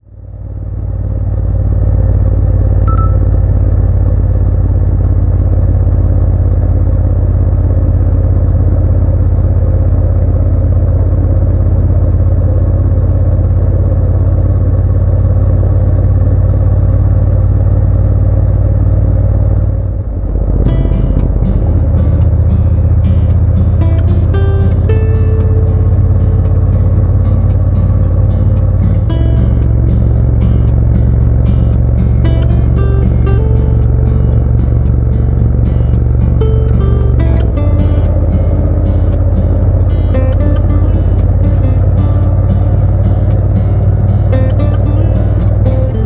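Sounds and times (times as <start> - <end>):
motorcycle engine running: 0.0 - 46.0
plucked guitar: 2.7 - 4.2, 20.4 - 46.0.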